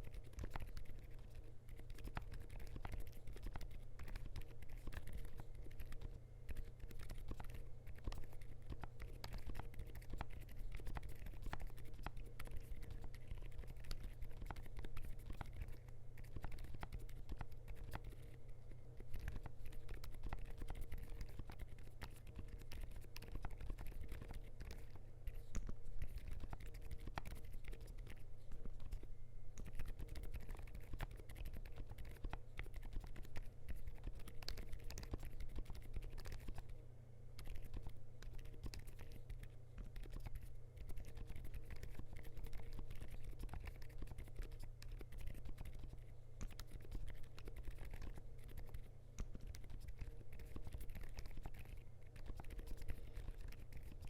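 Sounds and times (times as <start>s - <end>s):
mechanical keyboard typing: 0.0s - 18.2s, 29.6s - 36.7s, 37.4s - 54.0s.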